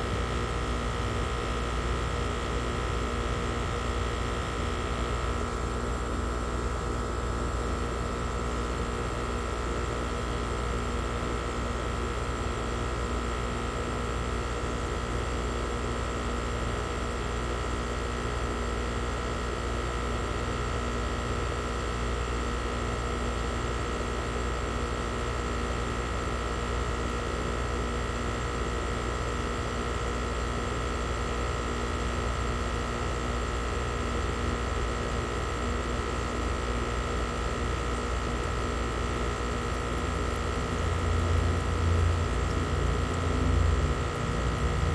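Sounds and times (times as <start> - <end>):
air conditioner humming: 0.0 - 11.7, 28.3 - 44.9.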